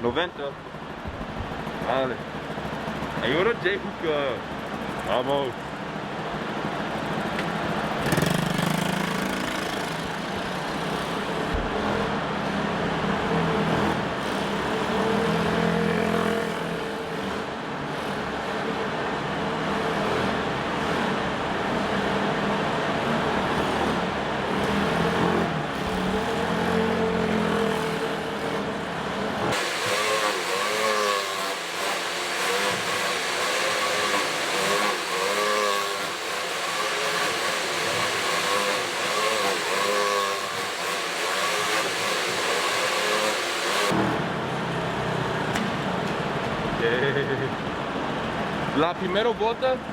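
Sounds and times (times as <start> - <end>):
pit bike engine revving: 6.9 - 44.3.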